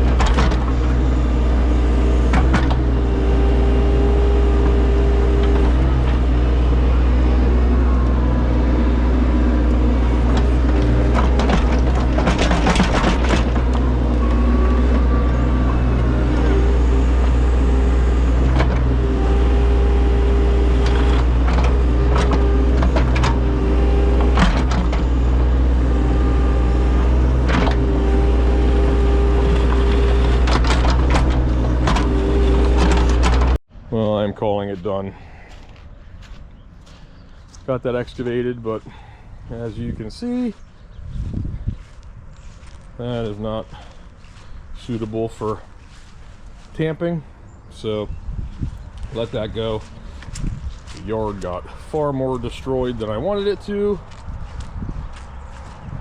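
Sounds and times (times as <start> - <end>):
hydraulic whine: 0.0 - 33.6
diesel excavator engine running: 0.0 - 56.0.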